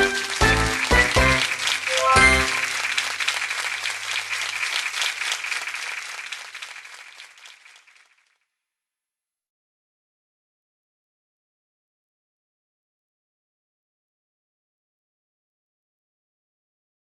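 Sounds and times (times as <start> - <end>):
crowd applause: 0.0 - 8.4.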